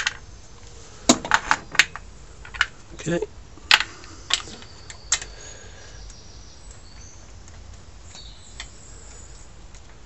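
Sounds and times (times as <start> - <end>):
faint bird chirps: 4.2 - 9.6.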